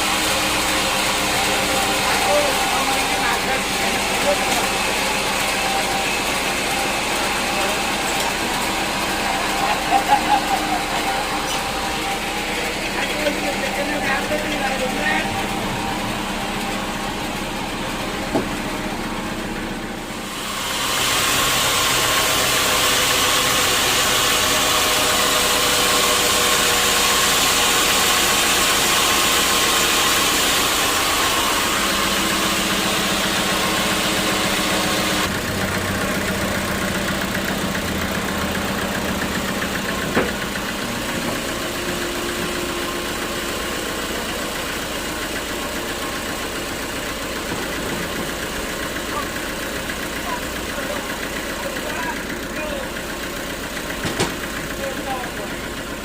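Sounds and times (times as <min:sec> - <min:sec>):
saw blade cutting wood: 0:00.0 - 0:15.8, 0:20.2 - 0:35.3
sawmill machinery running: 0:00.0 - 0:56.0.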